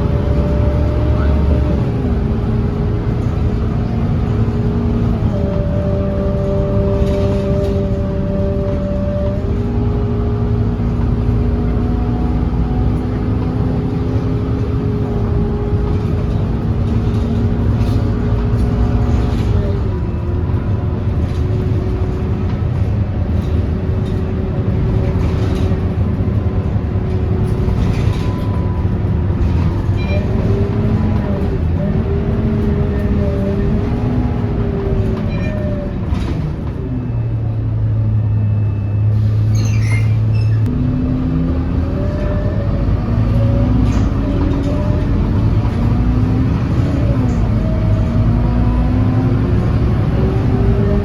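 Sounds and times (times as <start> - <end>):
bus engine rumbling: 0.0 - 51.0.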